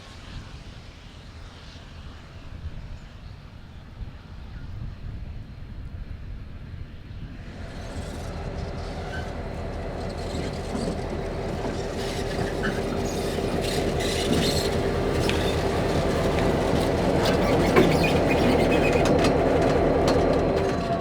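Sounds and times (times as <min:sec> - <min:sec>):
locomotive engine rumble: 0:05.3 - 0:21.0
train wheels clicking and clanking: 0:07.5 - 0:21.0.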